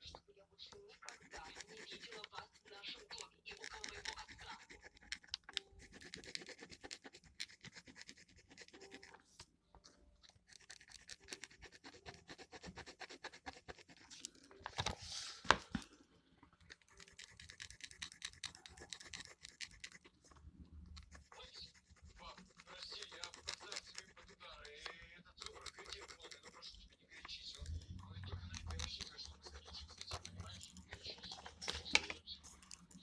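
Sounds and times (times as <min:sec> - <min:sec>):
pen scratching on paper: 0:00.7 - 0:09.2, 0:10.3 - 0:15.6, 0:16.6 - 0:20.1, 0:21.0 - 0:33.0.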